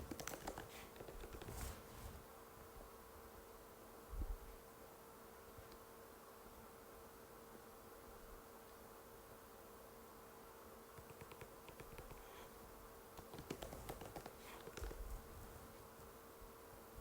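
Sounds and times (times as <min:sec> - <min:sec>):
faint steady hum: 0:00.0 - 0:17.0
keyboard key clicks: 0:11.0 - 0:12.2.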